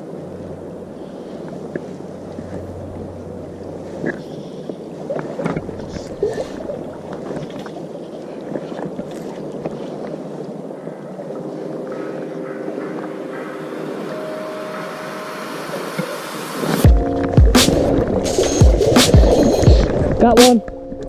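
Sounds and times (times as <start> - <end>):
river water rushing: 0.0 - 20.4
steady tones: 11.3 - 21.0.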